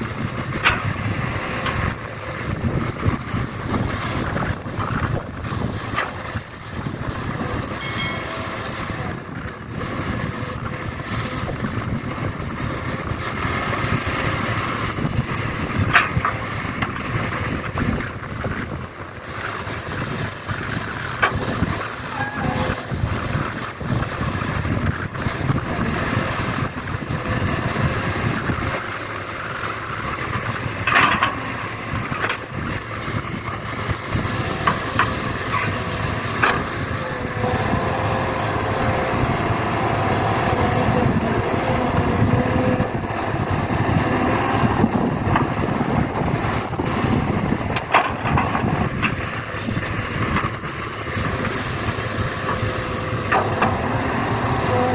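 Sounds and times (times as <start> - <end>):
excavator working: 0.0 - 54.9.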